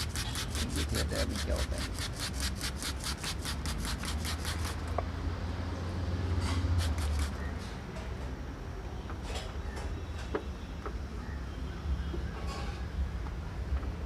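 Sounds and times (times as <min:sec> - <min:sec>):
rubbing on plastic lens: 0:00.0 - 0:04.8, 0:06.5 - 0:07.4
scrapes: 0:06.3 - 0:07.5.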